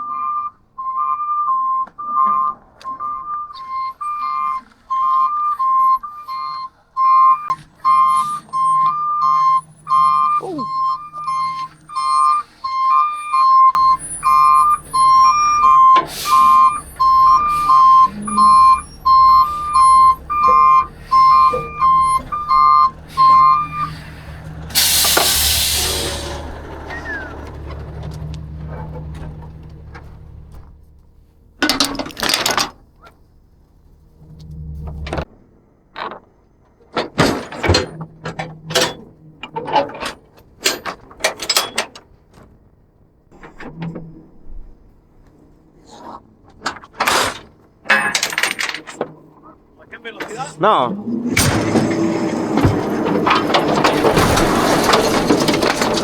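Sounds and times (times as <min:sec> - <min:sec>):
two-tone electronic alarm beeping: 0:00.0 - 0:27.5
truck engine running: 0:02.1 - 0:35.9, 0:47.5 - 0:56.0
loud hiss: 0:24.8 - 0:26.4.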